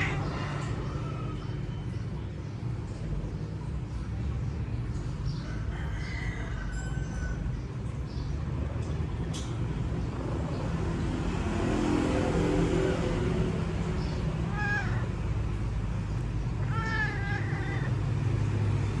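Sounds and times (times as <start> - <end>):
cat meowing: 0.0 - 0.4, 14.4 - 15.4, 16.5 - 18.3.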